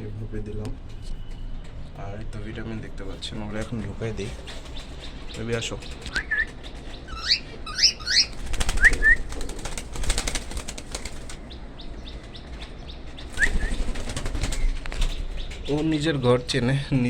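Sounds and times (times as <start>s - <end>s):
bird wings flapping: 4.2s - 7.1s, 7.8s - 11.6s, 13.2s - 16.0s.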